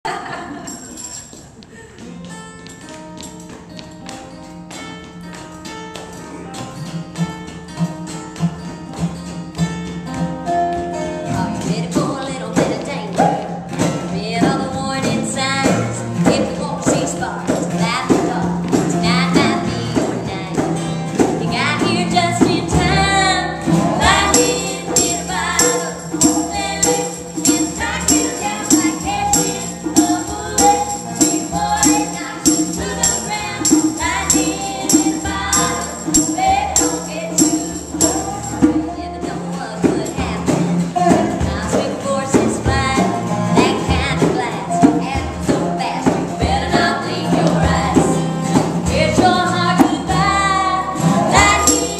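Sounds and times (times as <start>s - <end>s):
percussion beat: 0.1s - 51.9s
country song by a band: 6.2s - 51.9s
tambourine: 23.8s - 41.8s, 51.1s - 51.9s.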